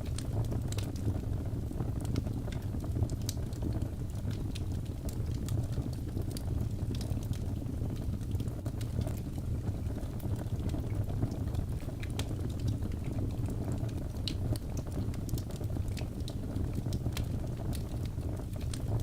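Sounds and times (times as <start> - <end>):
crackles and pops of logs: 0.0 - 19.0
low rumble of fire: 0.0 - 19.0.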